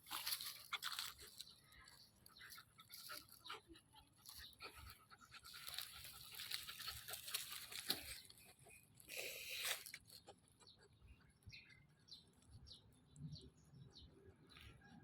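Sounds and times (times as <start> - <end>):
faint dog noises: 0.6 - 11.6.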